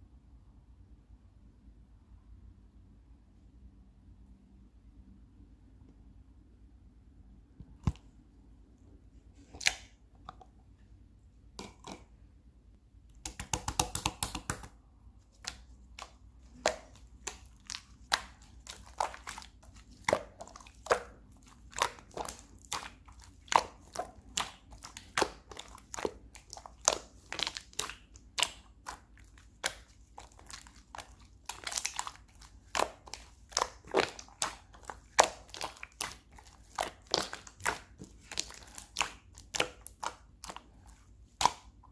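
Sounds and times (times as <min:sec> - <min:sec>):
sticky slime pops and clicks: 0:13.1 - 0:14.7.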